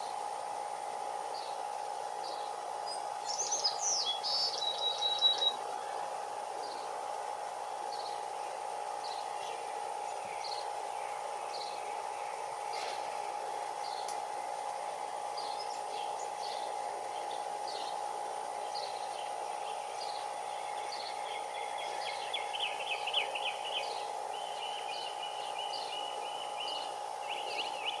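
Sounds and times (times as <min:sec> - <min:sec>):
steady low hum: 0:00.0 - 0:28.0
birds chirping: 0:00.8 - 0:28.0
bird trilling: 0:03.3 - 0:05.6.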